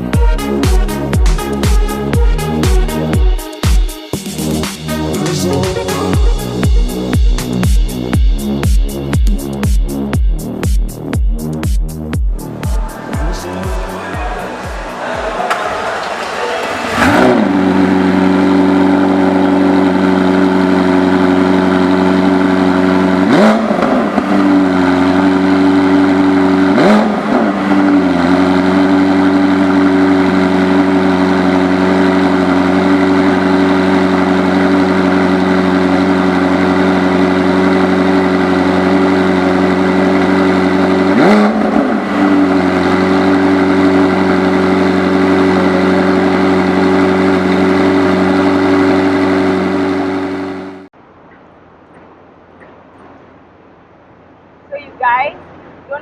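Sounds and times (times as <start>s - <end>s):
car engine idling: 0.0s - 54.8s
engine throttle revs: 11.9s - 50.9s.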